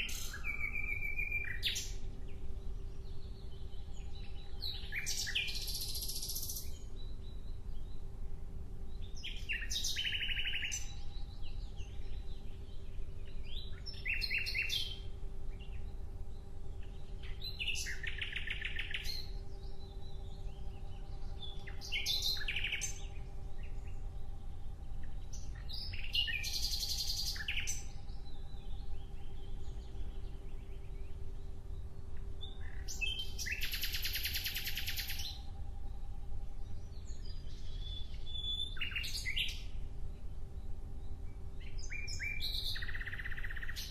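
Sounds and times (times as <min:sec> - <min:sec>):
steady low hum: 0:00.0 - 0:43.9
songbird trilling: 0:09.2 - 0:11.0, 0:21.4 - 0:23.1, 0:32.4 - 0:35.4, 0:41.6 - 0:43.9.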